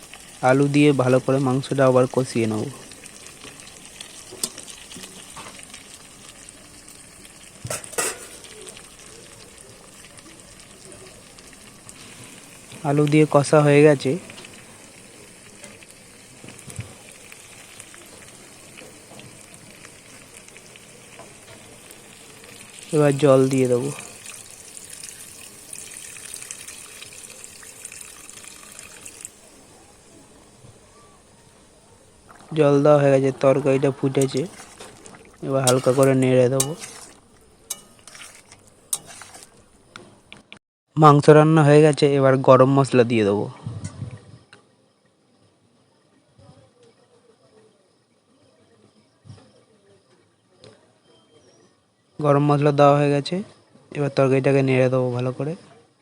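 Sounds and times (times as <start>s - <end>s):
water poured into frying pan: 0.0s - 40.3s
food sizzling in oil: 0.0s - 40.6s
spatula scraping a pan: 7.7s - 8.5s, 33.3s - 39.9s.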